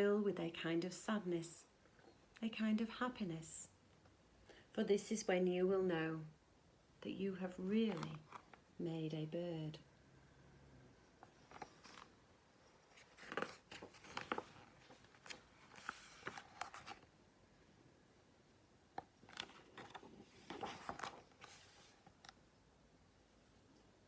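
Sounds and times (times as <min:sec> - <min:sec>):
book pages rustling: 0:07.7 - 0:08.7, 0:11.2 - 0:17.1, 0:19.0 - 0:22.4.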